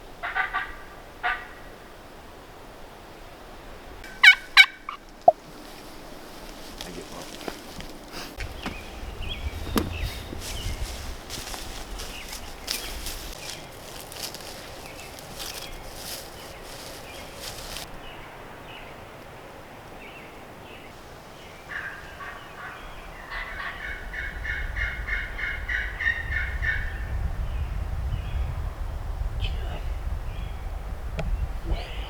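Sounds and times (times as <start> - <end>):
wind rumbling on microphone: 0.0 - 32.0
turkey gobbling: 0.2 - 1.7, 4.0 - 17.9, 21.7 - 26.9.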